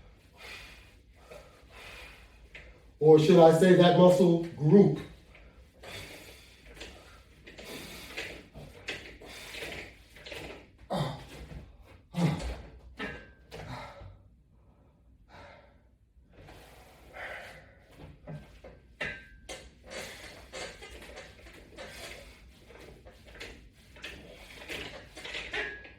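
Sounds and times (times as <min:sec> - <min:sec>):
man breathing hard: 0:00.0 - 0:02.5, 0:13.6 - 0:16.0, 0:16.6 - 0:17.9.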